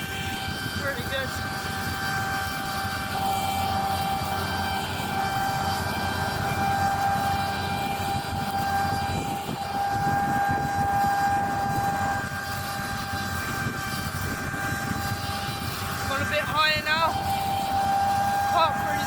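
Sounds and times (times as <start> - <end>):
combine harvester droning with high whine: 0.0 - 19.0.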